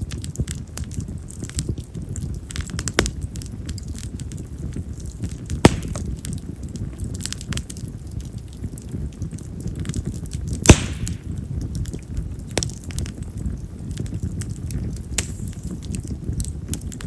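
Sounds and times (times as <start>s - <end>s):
fire crackling: 0.0s - 17.0s
loud sharp pops: 5.5s - 6.2s, 10.6s - 11.4s.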